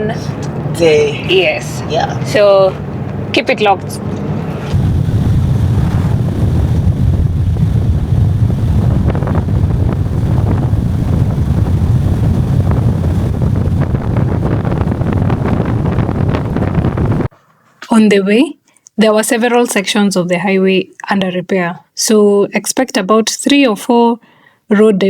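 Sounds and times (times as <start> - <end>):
car rumbling while driving: 0.0 - 17.3
wind buffeting microphone: 0.0 - 17.3.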